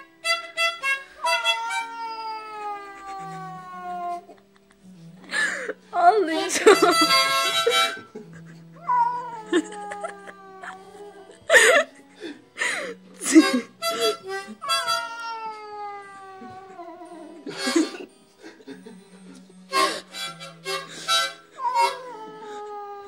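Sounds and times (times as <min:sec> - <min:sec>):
harmonica playing: 0:00.0 - 0:22.8
cat yowling: 0:01.2 - 0:04.4, 0:08.8 - 0:11.4, 0:14.6 - 0:17.5, 0:21.6 - 0:23.0.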